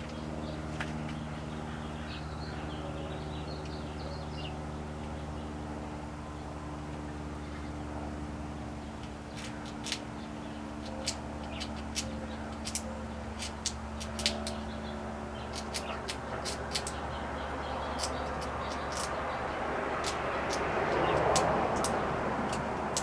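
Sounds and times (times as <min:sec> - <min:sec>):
steady low hum: 0:00.0 - 0:23.0
squirrel gnawing a nut shell: 0:09.0 - 0:23.0.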